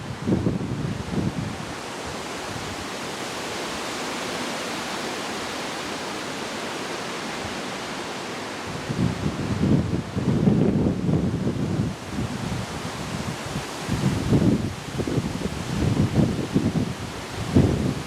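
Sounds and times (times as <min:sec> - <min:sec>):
wind buffeting microphone: 0:00.0 - 0:03.9, 0:08.6 - 0:18.0
wind rushing: 0:00.0 - 0:04.0, 0:08.6 - 0:18.0.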